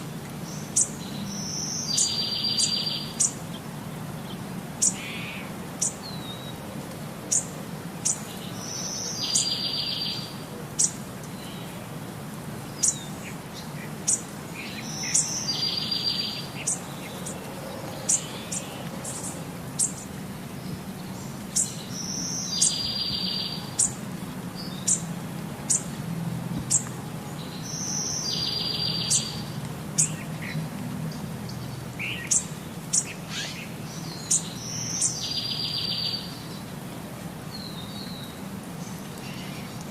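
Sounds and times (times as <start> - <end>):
birds chirping: 0.0 - 12.0, 12.6 - 39.9.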